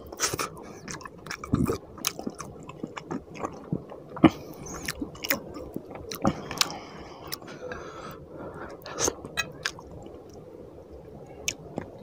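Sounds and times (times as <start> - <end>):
wet chewing and mouth smacks: 0.1 - 7.5.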